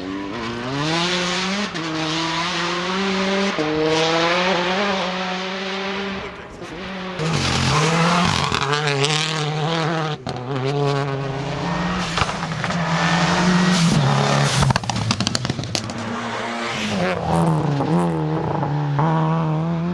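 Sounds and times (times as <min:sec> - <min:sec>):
rally car engine revving: 0:00.0 - 0:19.9
exhaust pops and cracks: 0:07.2 - 0:09.4, 0:11.8 - 0:18.2.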